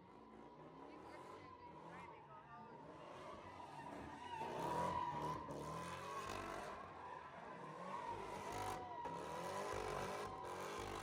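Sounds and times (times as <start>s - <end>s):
car tires squealing: 3.6s - 6.2s, 7.0s - 9.7s.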